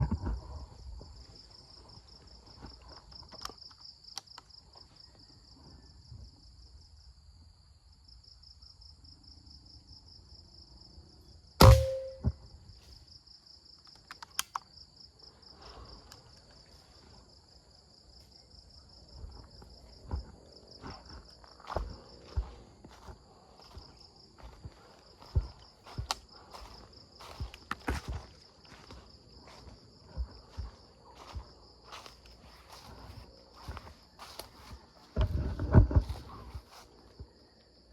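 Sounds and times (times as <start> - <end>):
insects chirring: 0.0 - 37.9
air rifle shot: 11.6 - 12.3
small click: 13.9 - 14.7.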